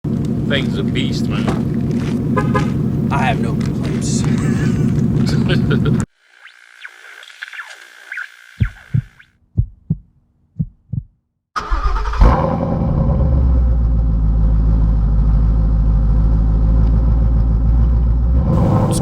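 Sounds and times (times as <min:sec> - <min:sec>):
car engine starting and idling: 0:00.1 - 0:06.1, 0:11.6 - 0:19.0
short low thumps: 0:08.6 - 0:11.2.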